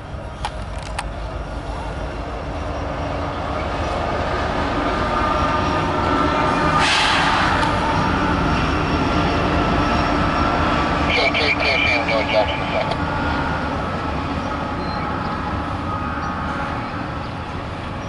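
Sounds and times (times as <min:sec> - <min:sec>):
diesel locomotives running: 0:00.0 - 0:18.0
brief rush of noise: 0:06.8 - 0:07.6.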